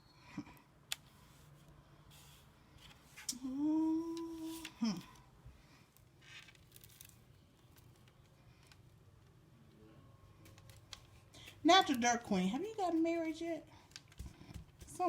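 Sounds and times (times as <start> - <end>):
person humming: 3.3 - 5.2.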